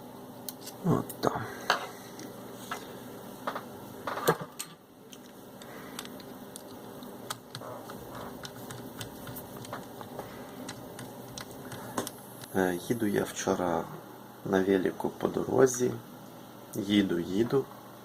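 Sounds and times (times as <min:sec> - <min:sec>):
small clicks and taps of parts: 0:05.1 - 0:12.6.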